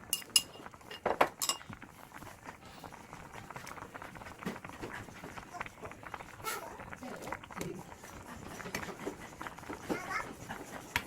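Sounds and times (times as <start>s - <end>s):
dishes and utensils clinking: 0.0s - 1.8s.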